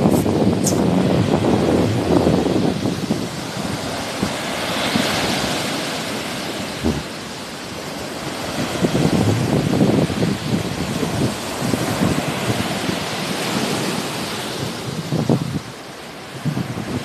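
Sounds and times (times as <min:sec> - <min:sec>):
sea waves washing on shore: 0:00.0 - 0:17.0
wind buffeting microphone: 0:00.0 - 0:17.0.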